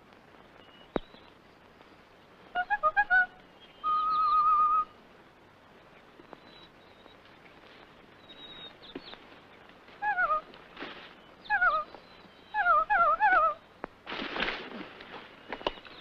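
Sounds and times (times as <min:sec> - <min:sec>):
bird-like warbling calls: 0:02.6 - 0:04.9.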